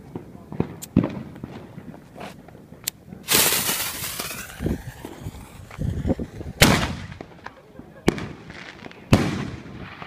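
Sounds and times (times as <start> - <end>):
small firework pops: 0.1 - 2.0
low thumps: 3.3 - 7.3
firework bang: 3.3 - 8.4.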